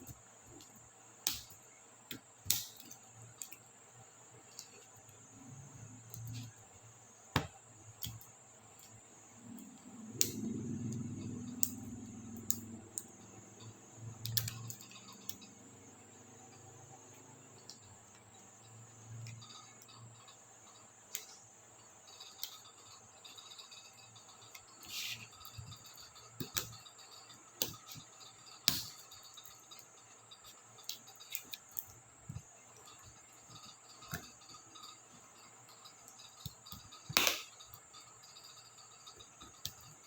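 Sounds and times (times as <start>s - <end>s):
faint high-pitched hiss: 0.0s - 40.0s.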